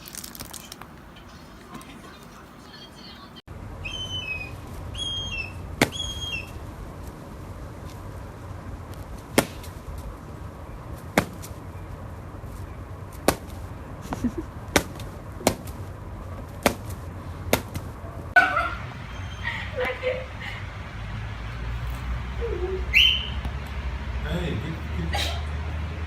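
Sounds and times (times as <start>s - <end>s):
steady low hum: 3.4s - 22.9s
bird chirping: 3.8s - 6.7s, 18.4s - 19.8s, 22.4s - 23.4s.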